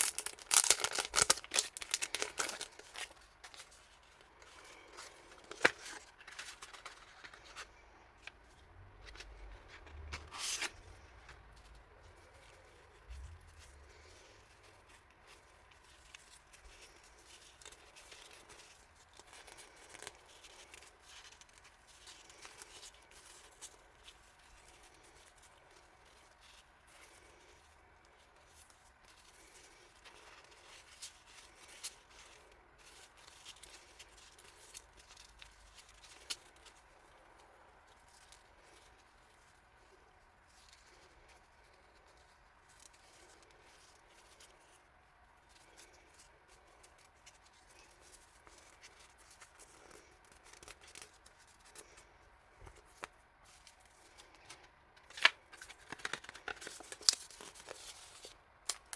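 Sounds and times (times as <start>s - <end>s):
hands handling paper and packaging: 0.0s - 58.9s.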